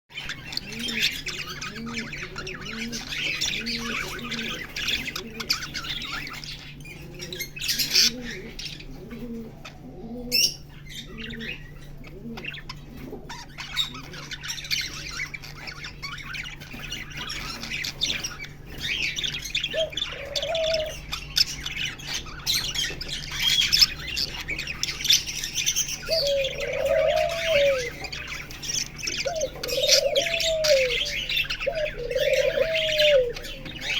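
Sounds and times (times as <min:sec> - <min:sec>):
birds twittering and chirping: 0:00.1 - 0:33.9
loud long bird calls: 0:13.0 - 0:33.9
low rising and falling bird calls: 0:26.0 - 0:28.3, 0:29.0 - 0:33.9.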